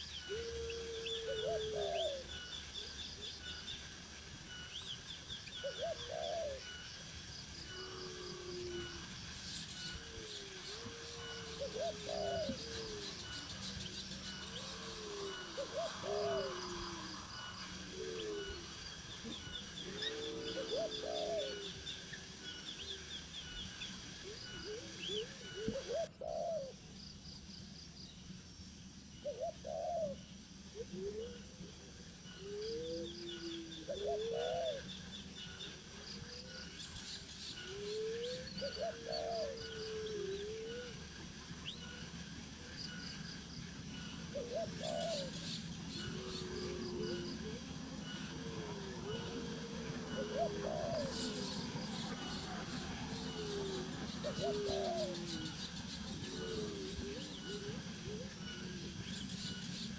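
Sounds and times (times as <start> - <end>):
low rising and falling bird calls: 0.0 - 4.0, 4.8 - 6.8, 7.6 - 26.8, 29.3 - 42.8, 44.0 - 59.9.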